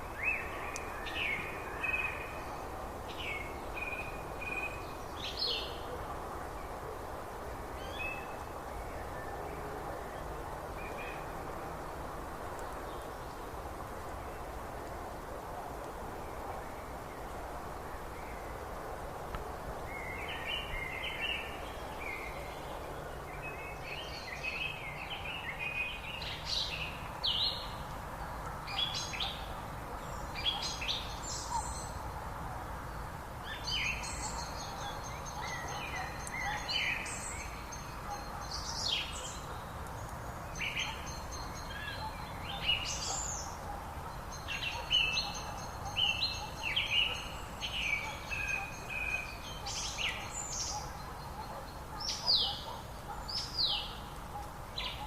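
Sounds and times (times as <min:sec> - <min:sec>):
small birds singing and chirping: 0:00.0 - 0:06.0, 0:19.8 - 0:55.0.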